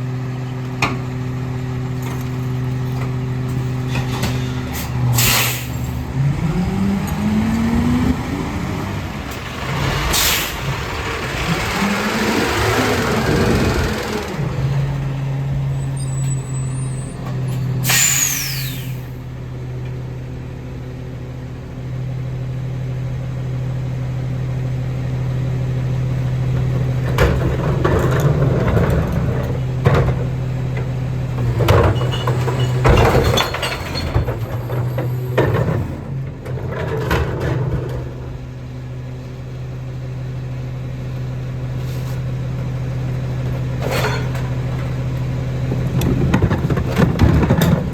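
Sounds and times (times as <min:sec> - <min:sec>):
diesel engine running: 0:00.0 - 0:47.9
air brake hiss: 0:04.4 - 0:05.9, 0:10.1 - 0:10.6, 0:17.8 - 0:19.2.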